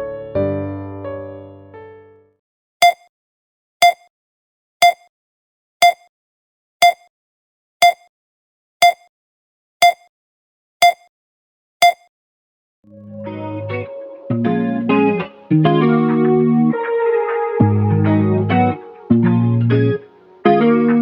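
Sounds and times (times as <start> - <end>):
short electronic beeps: 2.8 - 3.1, 3.8 - 4.1, 4.8 - 5.1, 5.8 - 6.1, 6.8 - 7.1, 7.8 - 8.1, 8.8 - 9.1, 9.8 - 10.1, 10.8 - 11.1, 11.8 - 12.1.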